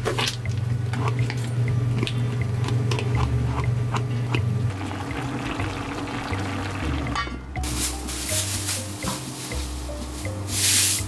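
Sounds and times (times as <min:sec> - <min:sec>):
chewing and biting food: 0:00.0 - 0:04.6
steady low hum: 0:00.0 - 0:11.0.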